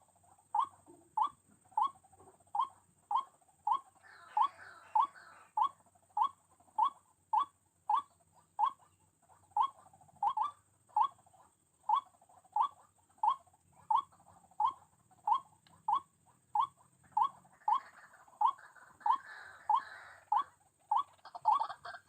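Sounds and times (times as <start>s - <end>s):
waterhen calling: 2.6s - 9.0s, 12.6s - 22.0s.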